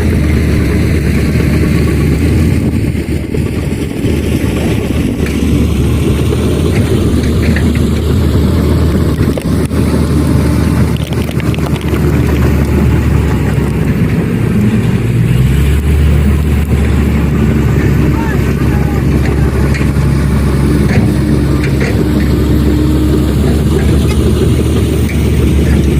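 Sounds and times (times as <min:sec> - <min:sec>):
diesel machinery engine drone: 0:00.0 - 0:25.9.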